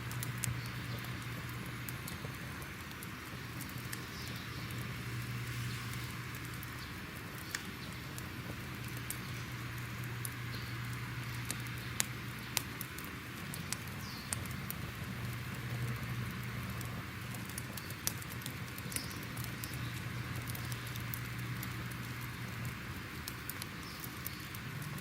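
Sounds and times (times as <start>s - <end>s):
sharp pops and snaps: 0.0s - 25.0s
wood fire crackling: 0.0s - 25.0s.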